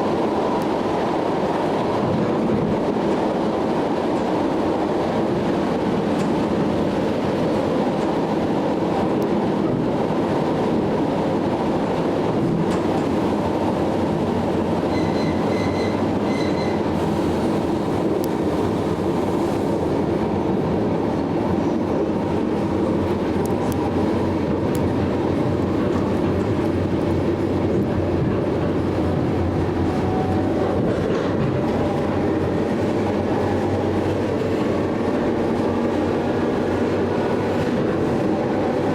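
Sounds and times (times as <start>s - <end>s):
electric train rumbling: 0.0s - 38.9s
short high beeps: 14.9s - 16.8s.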